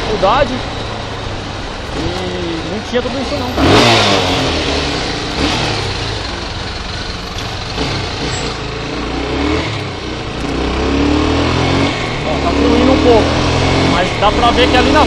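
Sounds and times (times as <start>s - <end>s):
motorcycle engine revving: 0.0s - 15.0s
wind and road noise: 0.0s - 15.0s.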